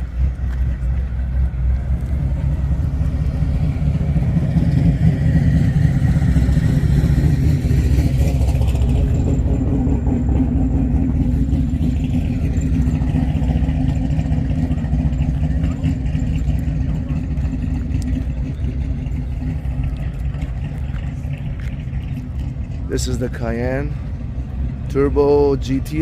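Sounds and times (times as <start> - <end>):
car engine low rumble: 0.0 - 26.0.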